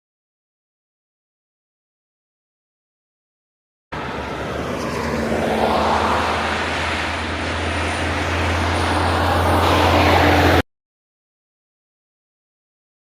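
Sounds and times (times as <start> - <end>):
heavy truck engine drone: 3.9 - 10.6
road noise: 3.9 - 10.6.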